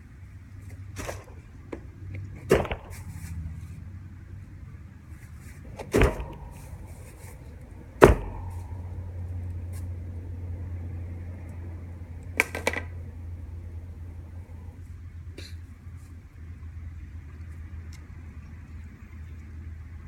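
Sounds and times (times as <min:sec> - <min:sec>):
broom striking metal wire cage: 0:01.0 - 0:01.6, 0:02.2 - 0:03.7, 0:05.4 - 0:10.5
metal cage clattering: 0:05.5 - 0:10.1.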